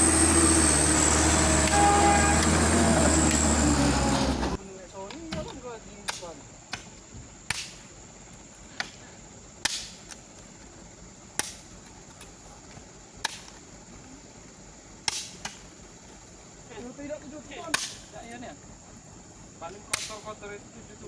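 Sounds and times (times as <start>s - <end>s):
sharp snaps: 7.5s - 7.8s, 9.6s - 10.2s, 11.3s - 11.6s, 13.2s - 13.6s, 15.0s - 15.6s, 17.7s - 18.0s, 19.9s - 20.3s.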